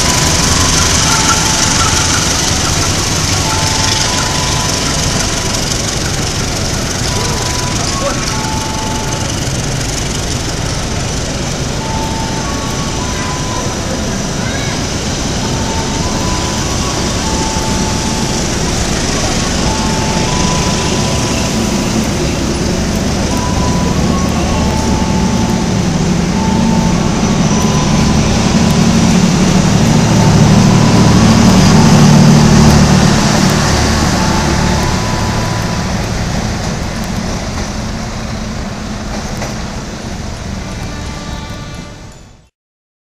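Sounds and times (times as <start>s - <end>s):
train wheels rumbling on rails: 0.0s - 42.4s.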